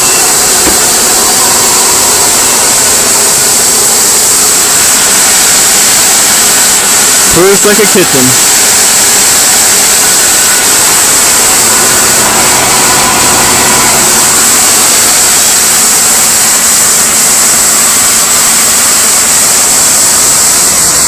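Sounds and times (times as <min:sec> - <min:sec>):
car engine idling: 0:00.0 - 0:05.1, 0:10.7 - 0:15.1
steady high hiss: 0:00.0 - 0:21.0.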